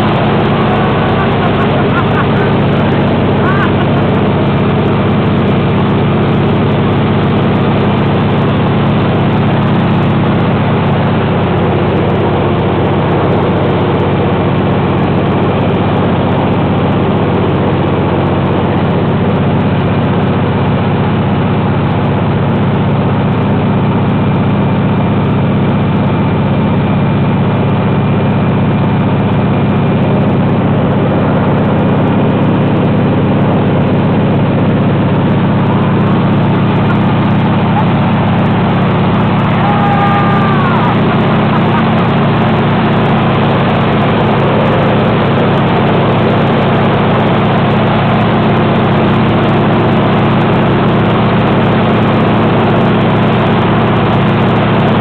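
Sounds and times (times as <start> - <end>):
air noise: 0.0 - 6.4, 30.1 - 51.0
propeller aircraft engine drone: 0.0 - 55.0.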